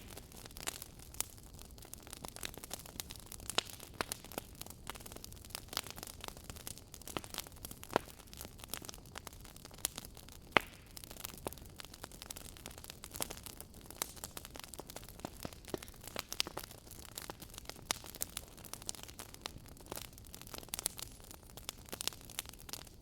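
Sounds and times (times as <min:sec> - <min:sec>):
sharp pops of fire: 0:00.0 - 0:01.3, 0:07.1 - 0:09.0, 0:09.8 - 0:22.9
wood fire crackling: 0:00.0 - 0:23.0.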